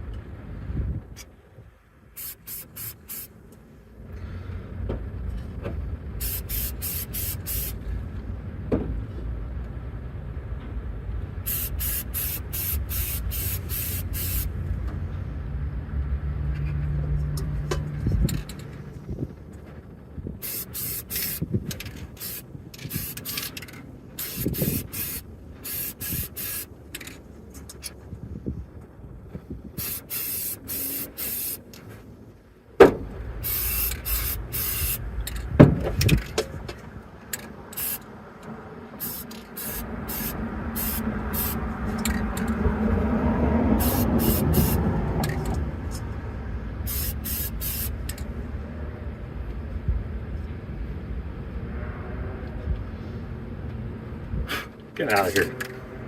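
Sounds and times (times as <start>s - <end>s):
spray paint can hissing: 2.2s - 3.3s, 6.2s - 7.8s, 11.4s - 14.6s, 20.4s - 21.5s, 22.1s - 23.6s, 24.2s - 26.7s, 29.8s - 31.7s, 33.4s - 35.0s, 37.7s - 38.0s, 39.0s - 42.1s, 43.8s - 44.8s, 46.8s - 48.2s.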